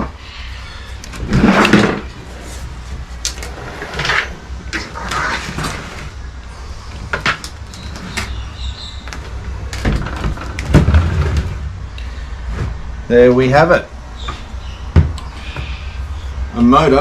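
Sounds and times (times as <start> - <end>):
scooter clunking and scraping: 1.1 - 6.2, 6.9 - 11.8
steady low rumble: 5.9 - 17.0.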